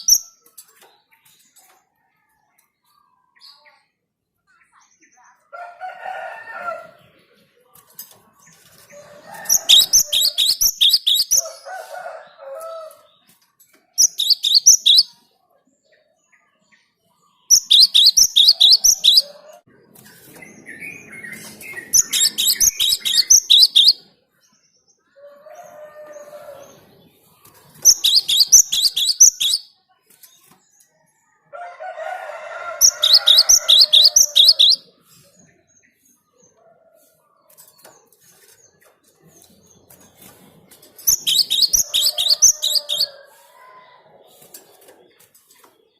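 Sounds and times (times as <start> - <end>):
bird singing rapid high notes: 0.0 - 0.3, 9.5 - 11.5, 14.0 - 15.1, 17.5 - 19.3, 20.7 - 24.0, 27.8 - 29.7, 32.8 - 34.9, 41.1 - 43.1.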